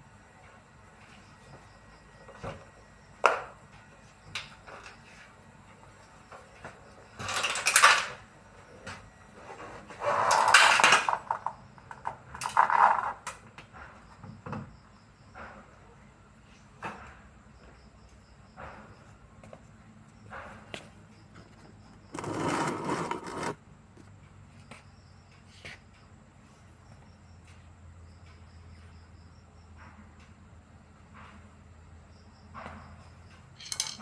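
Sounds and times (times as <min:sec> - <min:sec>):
metal tools clattering: 0:07.2 - 0:08.1, 0:33.5 - 0:34.0
rattling scraping bursts: 0:22.1 - 0:23.6.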